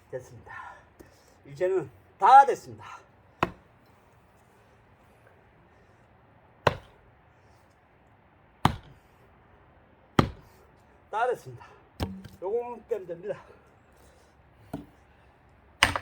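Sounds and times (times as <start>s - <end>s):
axe chopping wood: 3.4s - 3.7s, 6.6s - 7.0s, 8.6s - 9.0s, 10.2s - 10.6s, 12.0s - 12.4s, 14.7s - 15.0s, 15.8s - 16.0s.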